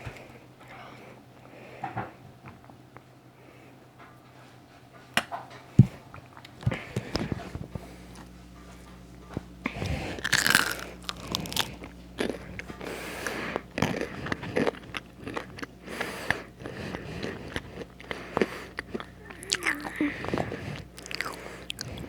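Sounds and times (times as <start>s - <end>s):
person chewing crispy fries: 9.4s - 22.0s.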